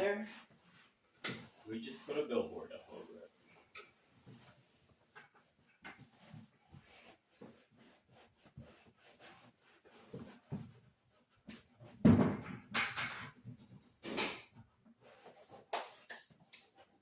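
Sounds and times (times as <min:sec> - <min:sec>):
rubbing and clattering: 0:02.6 - 0:16.9.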